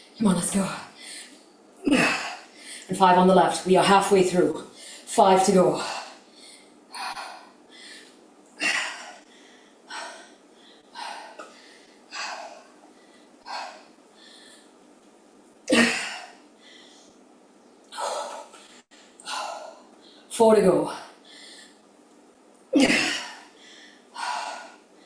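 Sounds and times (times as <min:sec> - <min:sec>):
woman breathing hard: 0:00.9 - 0:02.9, 0:05.8 - 0:14.8, 0:16.0 - 0:17.2, 0:17.9 - 0:20.3, 0:21.0 - 0:21.9, 0:23.2 - 0:25.0.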